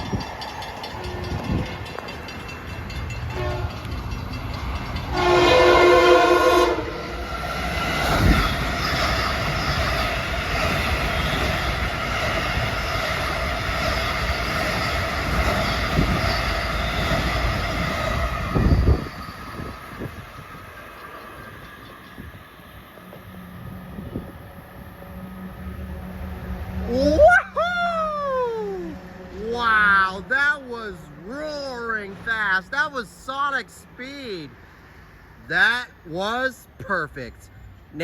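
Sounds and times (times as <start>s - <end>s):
train roaring past: 0.0s - 36.5s
train horn: 3.3s - 3.9s, 5.1s - 7.2s, 23.0s - 27.2s.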